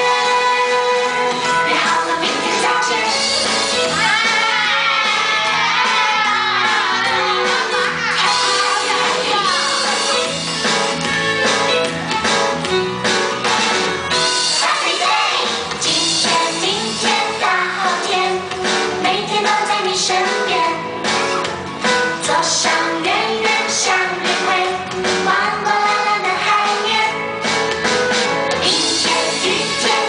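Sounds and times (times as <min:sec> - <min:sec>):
people singing: 0:00.0 - 0:10.2, 0:14.5 - 0:18.4, 0:22.2 - 0:27.1, 0:28.6 - 0:30.0
instrumental backing with steady beat: 0:00.0 - 0:19.3, 0:20.2 - 0:30.0.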